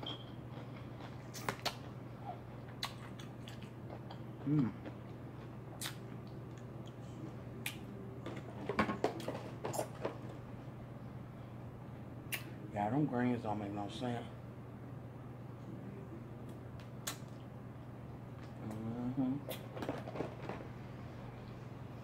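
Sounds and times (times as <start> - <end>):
chewing fried chicken: 0.5 - 7.0
wet mouth clicks and smacks: 1.3 - 1.9, 2.8 - 3.7, 5.8 - 6.7, 12.3 - 12.5, 17.0 - 17.4
person humming: 4.4 - 4.8, 18.6 - 19.5.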